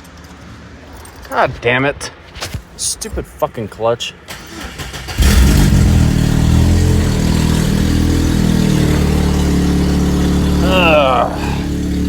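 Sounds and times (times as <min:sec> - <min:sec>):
pickup engine starting and idling: 0:04.2 - 0:12.0.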